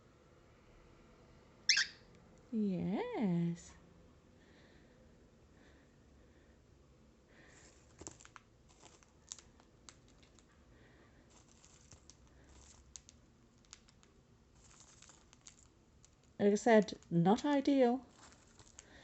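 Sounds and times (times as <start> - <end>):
crinkling rustles: 7.4 - 19.0
small clicks: 11.9 - 16.4.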